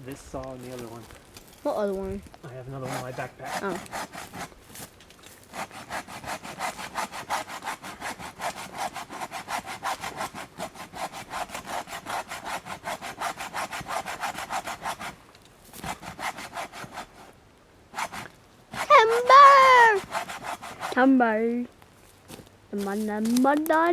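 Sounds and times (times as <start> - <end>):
hand saw cutting tree trunk: 2.5 - 21.1.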